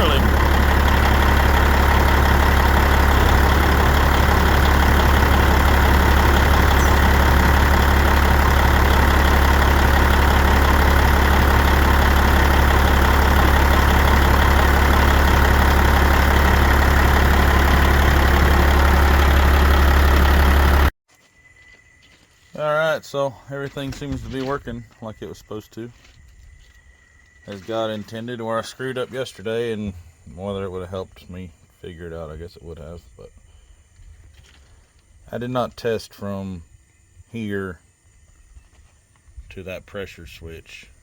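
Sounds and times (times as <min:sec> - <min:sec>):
truck diesel engine idling: 0:00.0 - 0:20.9.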